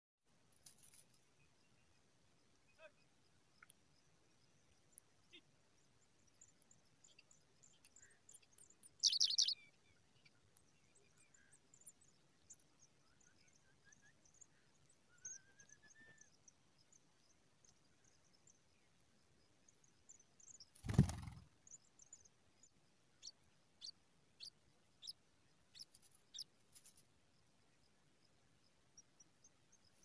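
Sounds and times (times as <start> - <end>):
pipits chirping: 9.0 - 9.6
sharp high bird calls: 9.0 - 9.6.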